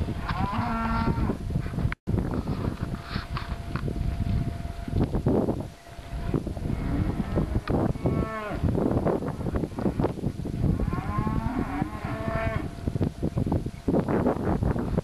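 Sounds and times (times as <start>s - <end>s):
cattle mooing: 0.2s - 1.4s, 6.7s - 8.7s, 10.8s - 12.7s.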